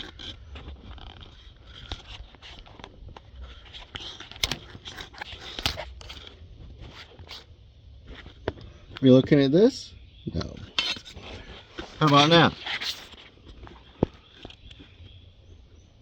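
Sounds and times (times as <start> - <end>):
camera handling clicks and scrapes: 0.0 - 7.5, 10.7 - 14.9.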